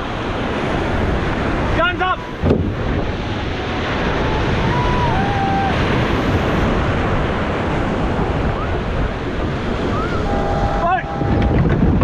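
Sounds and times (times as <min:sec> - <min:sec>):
ocean surf: 0:00.0 - 0:12.0
wind buffeting microphone: 0:00.0 - 0:12.0.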